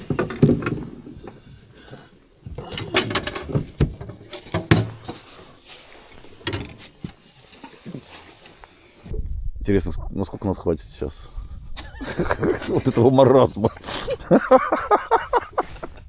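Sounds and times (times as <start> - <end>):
objects knocking and clattering: 0.0 - 5.5, 6.3 - 7.8.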